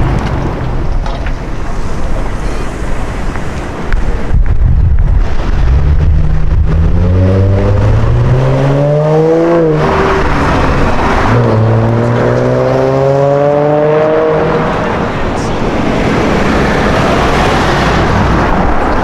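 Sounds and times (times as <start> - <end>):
car engine accelerating hard: 5.1 - 19.0.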